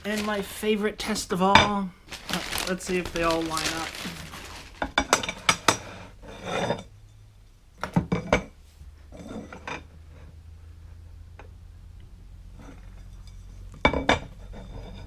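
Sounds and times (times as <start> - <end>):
metal bars scraping: 4.3 - 7.3, 9.1 - 10.3, 12.5 - 15.0.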